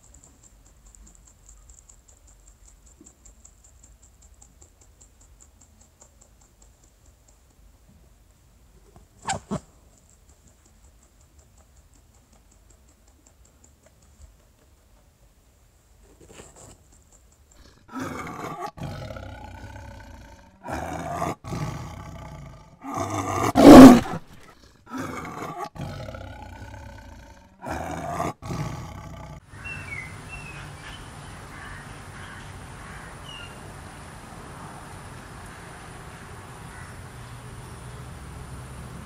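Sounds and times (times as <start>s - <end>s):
faint background hiss: 0.0s - 21.8s, 29.4s - 39.0s
jaguar roaring: 17.6s - 29.4s.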